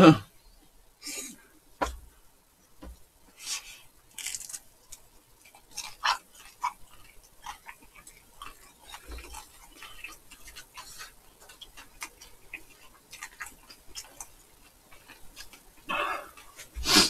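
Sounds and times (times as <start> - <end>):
chewing crispy food: 3.4 - 17.0.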